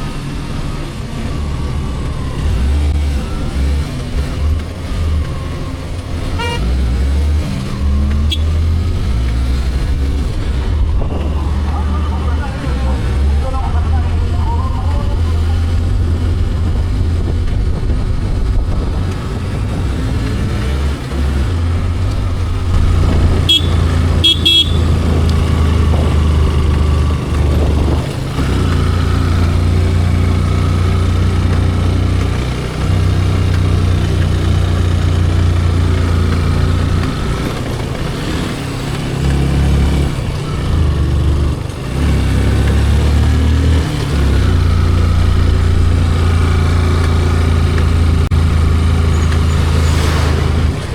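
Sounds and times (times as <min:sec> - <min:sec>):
wind and engine rumble: 0:00.0 - 0:50.9
horn toots: 0:06.2 - 0:07.0, 0:08.2 - 0:08.6, 0:22.7 - 0:26.1.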